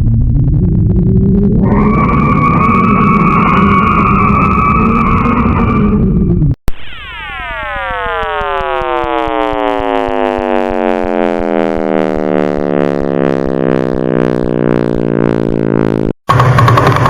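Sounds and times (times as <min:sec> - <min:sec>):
tones sliding down in pitch: 0:06.7 - 0:16.2.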